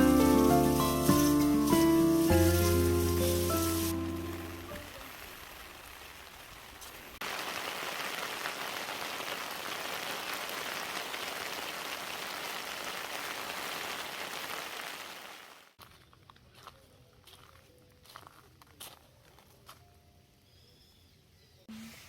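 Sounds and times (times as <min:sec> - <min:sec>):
heavy rain falling: 0:00.0 - 0:15.7.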